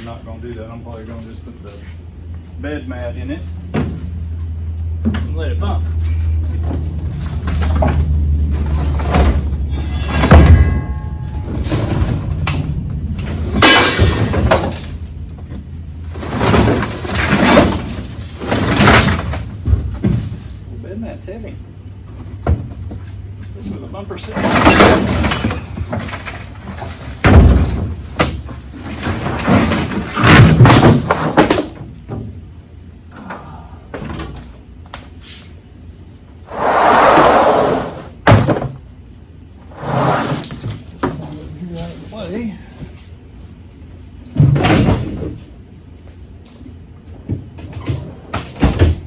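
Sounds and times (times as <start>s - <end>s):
heavy parts being handled: 6.0s - 20.8s, 22.0s - 33.1s
heavy metal parts thudding: 6.1s - 20.8s, 24.2s - 32.4s
loud bang with metallic ring: 9.7s - 12.2s
rubber mat scraping on steel: 36.5s - 38.2s, 39.7s - 40.8s.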